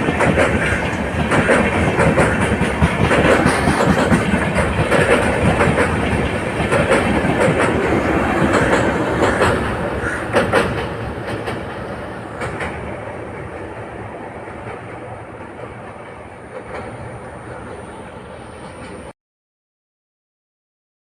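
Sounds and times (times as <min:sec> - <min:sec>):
train wheels clacking on rails: 0:00.0 - 0:19.1.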